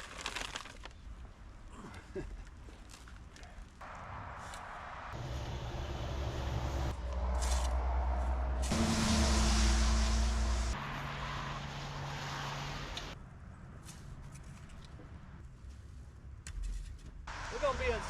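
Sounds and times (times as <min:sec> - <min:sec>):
loud hiss: 0:08.7 - 0:10.8.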